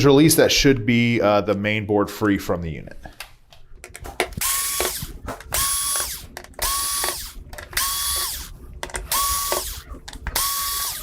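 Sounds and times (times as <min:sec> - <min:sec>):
electric screwdriver whining: 0:04.3 - 0:11.0.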